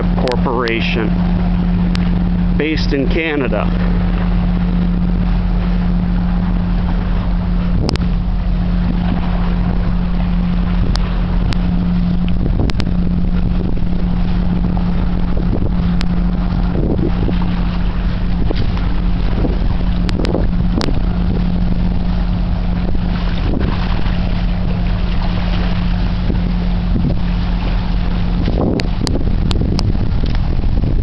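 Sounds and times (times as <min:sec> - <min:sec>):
low engine hum: 0:00.0 - 0:31.0.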